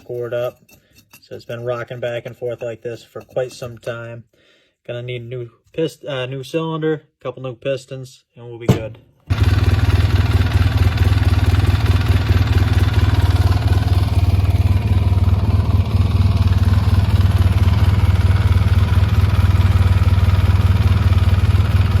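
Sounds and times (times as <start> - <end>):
atv engine idling: 9.3 - 22.0.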